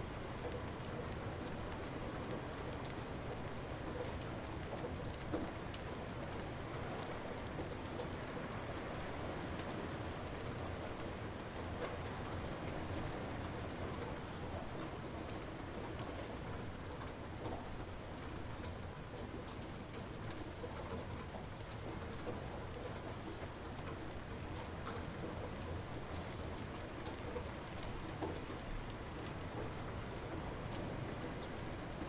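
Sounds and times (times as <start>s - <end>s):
light rain falling: 0.0s - 32.0s
raindrop ticks: 0.2s - 32.0s.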